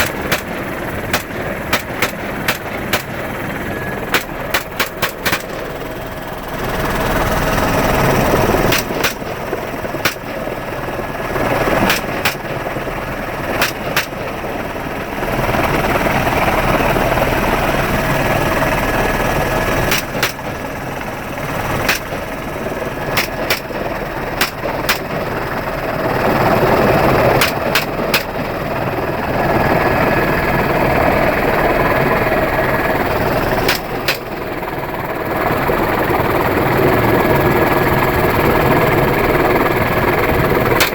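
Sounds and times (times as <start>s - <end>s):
rifle shots: 0.0s - 5.9s, 8.6s - 10.6s, 11.7s - 12.8s, 13.5s - 14.4s, 19.9s - 20.7s, 21.7s - 25.3s, 33.6s - 34.3s
helicopter engine and rotor drone: 0.0s - 40.9s.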